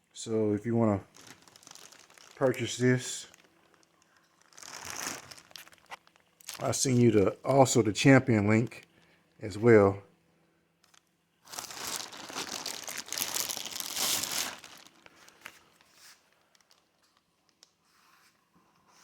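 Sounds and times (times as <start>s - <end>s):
packaging crinkling: 1.0s - 7.1s, 10.8s - 17.7s.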